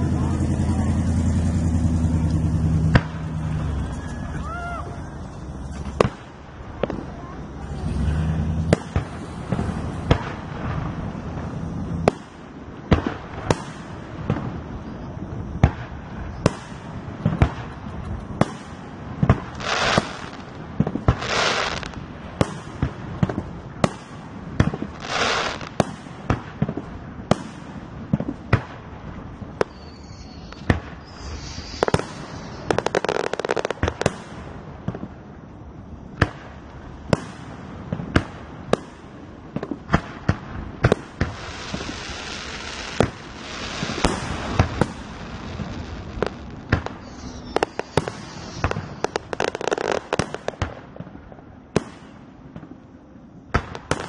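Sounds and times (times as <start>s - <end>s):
fireworks hissing bursts: 0.0s - 26.7s, 27.3s - 35.2s, 39.8s - 50.7s
fireworks bangs: 0.0s - 52.8s, 53.5s - 54.0s.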